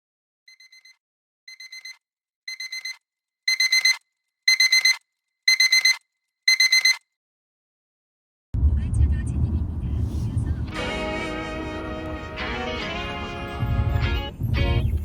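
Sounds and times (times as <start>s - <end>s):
electronic alarm beeping: 0.5s - 7.0s.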